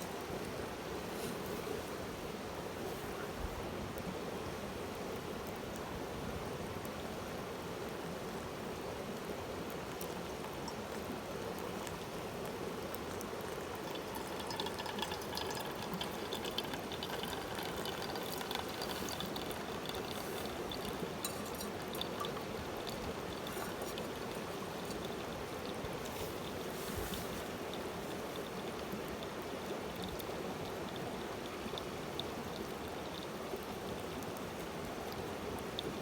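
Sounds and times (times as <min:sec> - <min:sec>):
running water: 0:09.0 - 0:36.0
light clicks and tinkling: 0:13.7 - 0:33.4.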